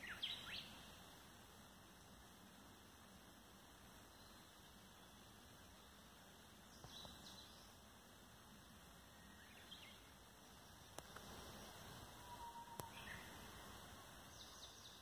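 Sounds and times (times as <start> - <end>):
bird chirps: 0.0 - 0.9, 9.1 - 15.0
faint hiss: 0.0 - 15.0.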